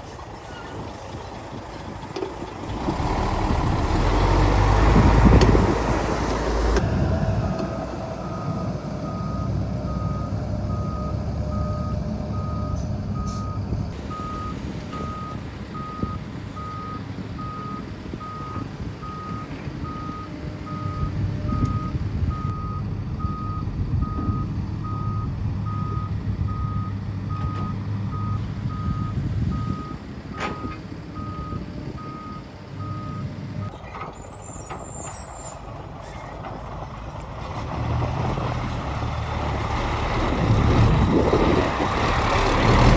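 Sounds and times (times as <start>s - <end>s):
diesel engine running: 0.0s - 42.9s
reversing alarm beeping: 6.8s - 33.7s.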